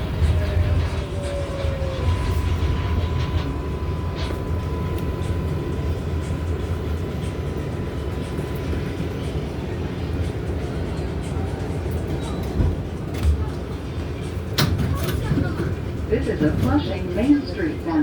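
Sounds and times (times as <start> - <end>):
subway train rumble: 0.0 - 18.0.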